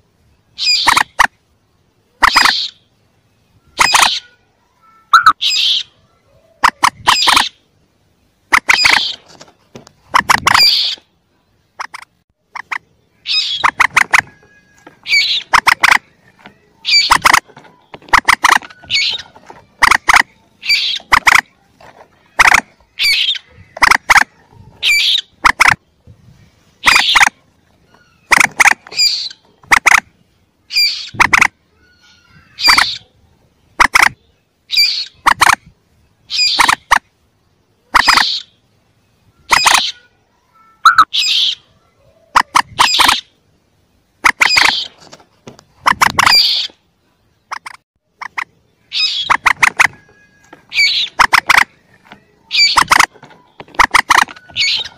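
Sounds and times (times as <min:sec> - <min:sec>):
moorhen chick calls: 0:00.5 - 0:01.4, 0:02.1 - 0:03.0, 0:03.6 - 0:04.4, 0:05.1 - 0:07.7, 0:08.5 - 0:09.3, 0:10.0 - 0:11.1, 0:11.8 - 0:26.0, 0:26.8 - 0:37.0, 0:37.8 - 0:38.6, 0:39.4 - 0:40.1, 0:40.8 - 0:43.4, 0:44.2 - 0:45.0, 0:45.8 - 0:46.8, 0:47.4 - 0:54.9.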